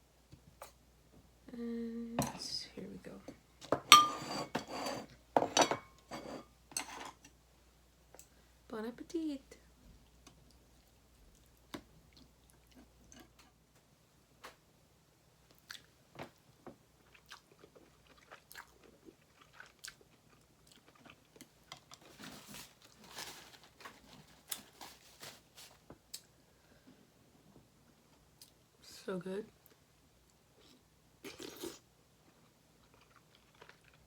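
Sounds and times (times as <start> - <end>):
person chewing: 17.0 - 22.0, 30.6 - 34.0.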